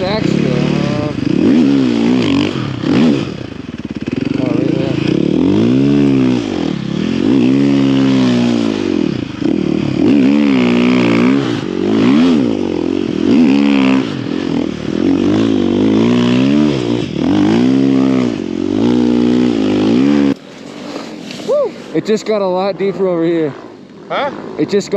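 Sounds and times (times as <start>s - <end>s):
snow bike engine revving: 0.0s - 24.9s.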